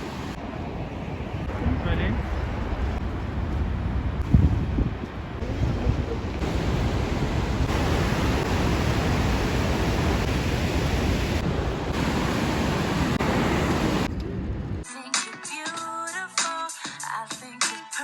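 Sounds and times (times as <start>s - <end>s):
waterfall rushing: 5.6s - 14.1s.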